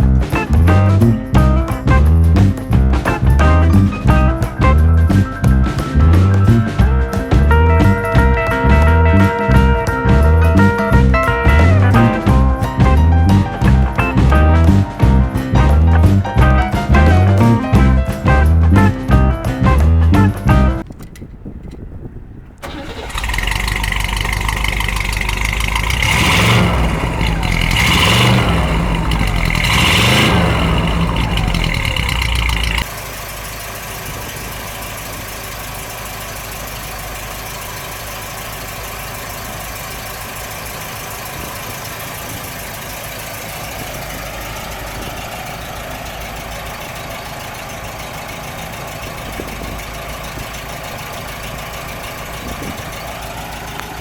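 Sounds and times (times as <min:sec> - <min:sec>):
car engine idling: 0:00.0 - 0:19.3, 0:20.0 - 0:54.0
car engine revving: 0:22.6 - 0:54.0.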